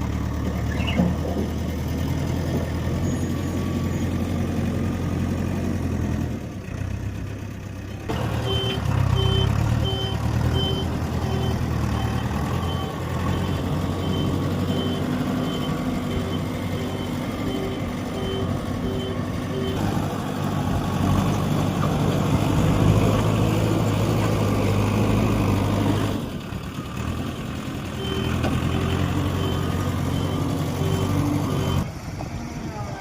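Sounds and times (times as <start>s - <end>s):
diesel construction machinery running: 0.0s - 33.0s
reversing alarm beeping: 8.0s - 19.8s, 28.0s - 31.9s.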